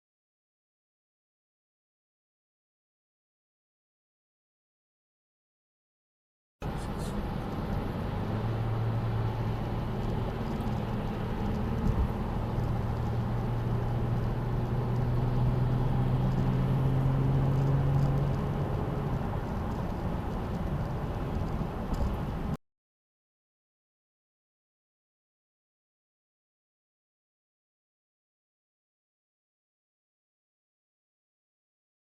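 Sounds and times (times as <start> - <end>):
car engine humming: 6.6 - 22.6
road noise: 6.6 - 22.6.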